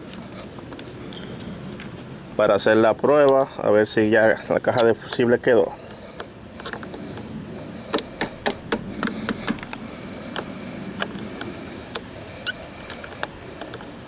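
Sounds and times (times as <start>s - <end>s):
high squeak: 12.4s - 12.7s.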